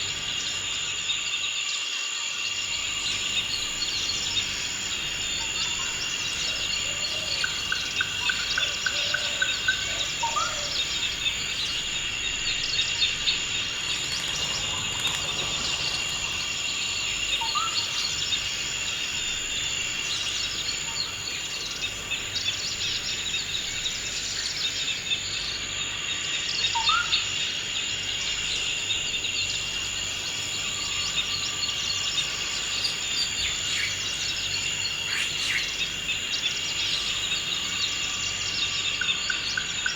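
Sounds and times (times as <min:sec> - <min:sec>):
insect drone: 0:00.0 - 0:39.9.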